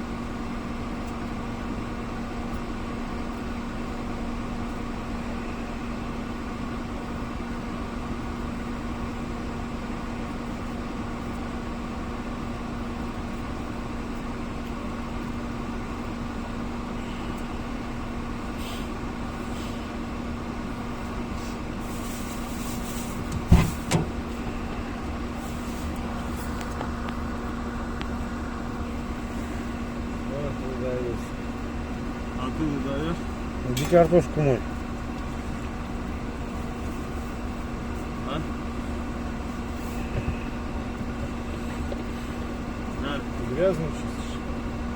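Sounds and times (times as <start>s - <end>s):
steady motor hum: 0.0s - 44.9s
sharp knocks: 23.2s - 24.2s.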